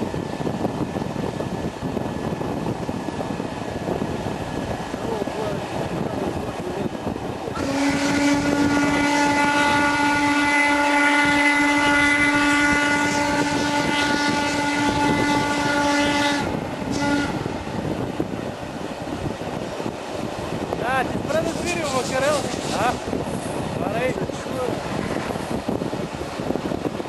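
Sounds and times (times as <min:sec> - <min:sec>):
train rumbling: 0:00.0 - 0:27.0
steam whistle blowing: 0:07.6 - 0:17.4.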